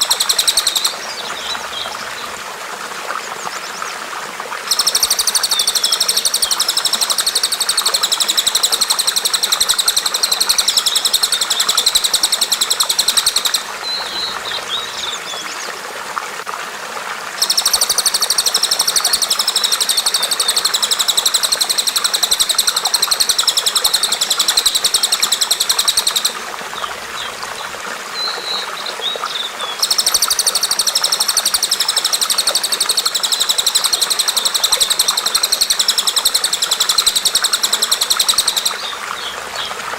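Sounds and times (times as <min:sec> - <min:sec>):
bird chirps: 0:00.0 - 0:01.9, 0:04.7 - 0:15.5, 0:17.4 - 0:26.4, 0:28.2 - 0:39.8
running water: 0:00.0 - 0:39.9
songbird buzzy trill: 0:04.7 - 0:15.1, 0:17.4 - 0:26.4.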